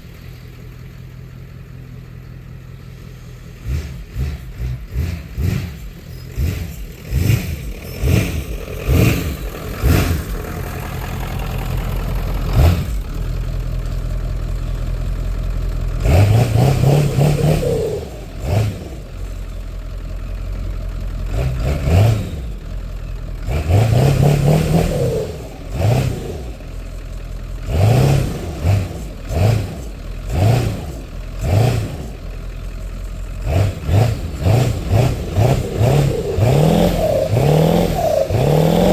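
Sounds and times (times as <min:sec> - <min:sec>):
diesel truck engine revving: 0:00.0 - 0:38.9.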